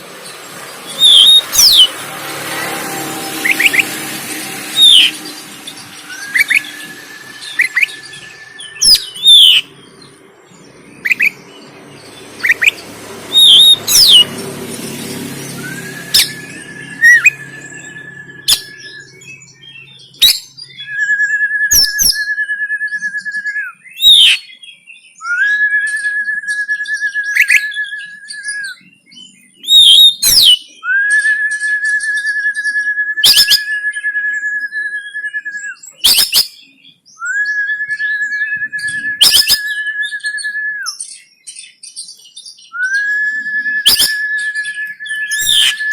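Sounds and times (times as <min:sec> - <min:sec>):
bird singing whistles and clicks: 0:20.2 - 0:24.5, 0:25.2 - 0:45.9.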